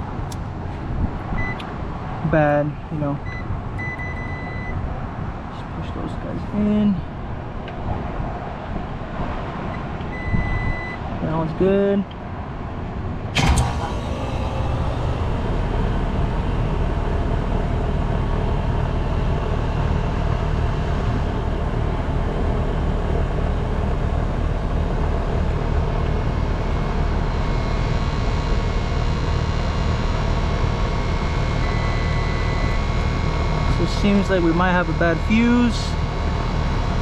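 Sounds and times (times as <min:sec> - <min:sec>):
hvac unit humming: 0:13.4 - 0:37.0.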